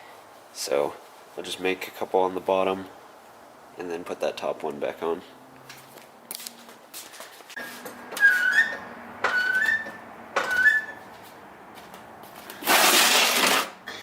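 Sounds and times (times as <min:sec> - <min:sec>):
short high squeaks: 0:07.6 - 0:11.1.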